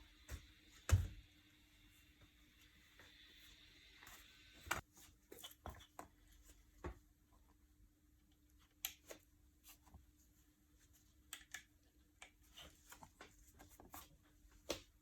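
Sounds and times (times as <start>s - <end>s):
faint clicks and light taps: 10.9s - 15.0s.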